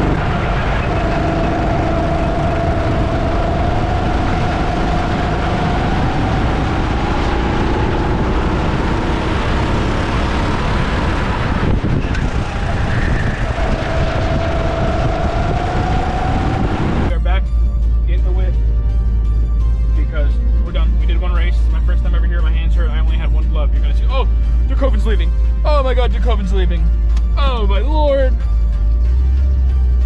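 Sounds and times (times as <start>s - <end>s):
go-kart motor whine: 0.0s - 17.1s.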